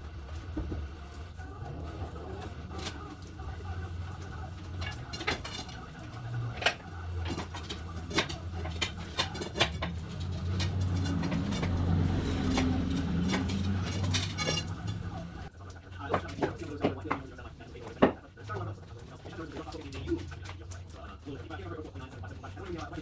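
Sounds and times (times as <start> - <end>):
metal clinking and knocking: 2.6 - 15.5.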